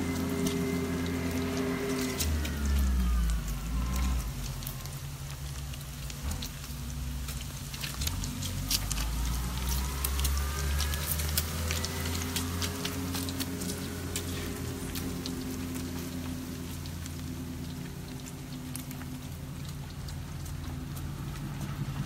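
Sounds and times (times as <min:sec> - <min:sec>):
bacon frying with pops: 0:00.0 - 0:22.0
low rumble: 0:00.0 - 0:22.0.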